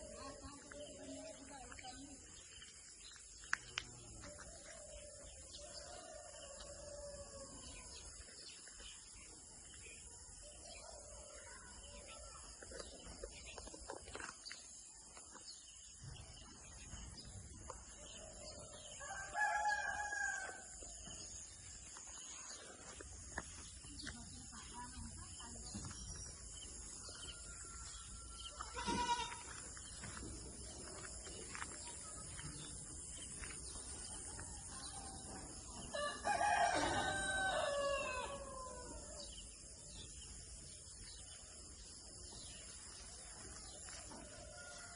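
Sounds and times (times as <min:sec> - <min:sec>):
rooster crowing: 0:19.0 - 0:20.7, 0:35.9 - 0:39.1.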